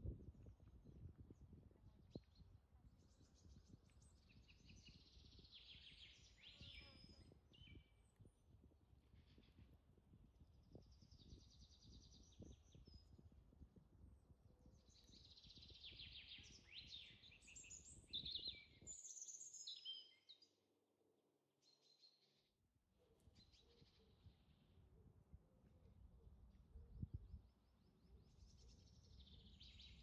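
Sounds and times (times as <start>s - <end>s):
faint bird chirps: 2.1s - 8.3s, 14.6s - 20.5s, 21.6s - 25.1s, 25.8s - 30.0s.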